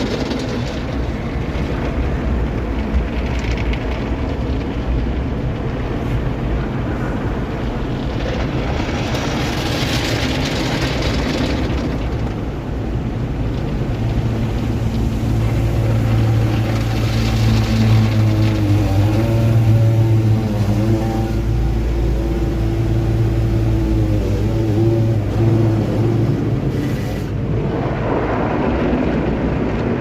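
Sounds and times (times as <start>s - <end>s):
low engine hum: 0.0s - 30.0s.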